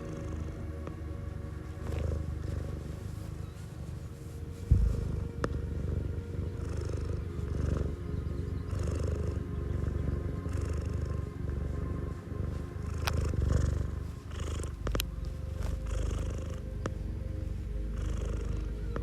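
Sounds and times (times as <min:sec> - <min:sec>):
cat purring: 0:00.0 - 0:19.0
low thump: 0:04.7 - 0:05.6.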